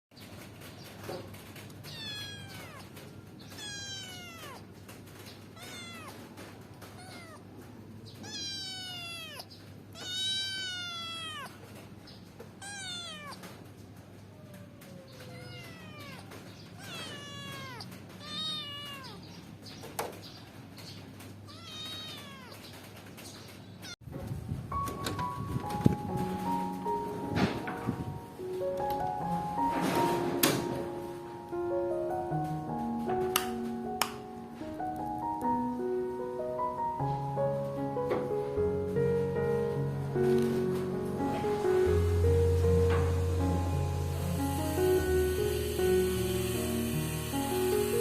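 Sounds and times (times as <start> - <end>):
kitten meowing: 1.8 - 4.8, 5.5 - 7.5, 8.1 - 11.7, 12.6 - 13.5, 14.5 - 19.4, 21.5 - 22.6.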